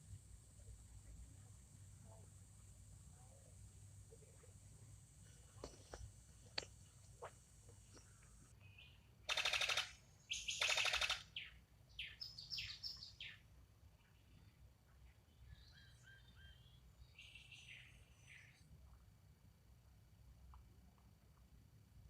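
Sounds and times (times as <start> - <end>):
bird chirping: 8.6 - 13.4, 15.0 - 18.6
bird harsh rattling calls: 9.3 - 11.4.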